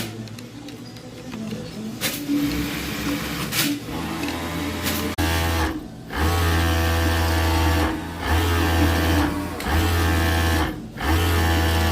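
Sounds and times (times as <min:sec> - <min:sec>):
electric sewing machine running: 0:02.4 - 0:11.9.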